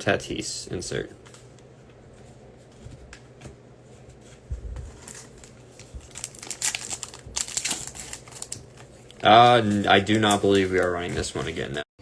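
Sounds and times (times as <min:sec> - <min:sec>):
wrapper crinkling and tearing: 0:05.0 - 0:11.8.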